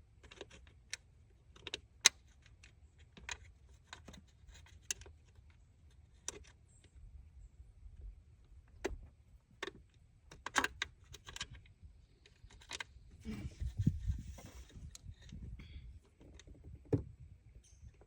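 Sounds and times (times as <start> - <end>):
rustling and clatter: 8.7 - 18.0.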